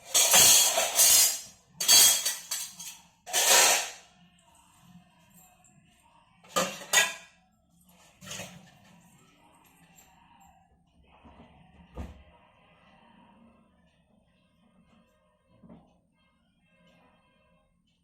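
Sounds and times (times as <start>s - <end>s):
hard objects clattering and clinking: 0.0s - 4.0s.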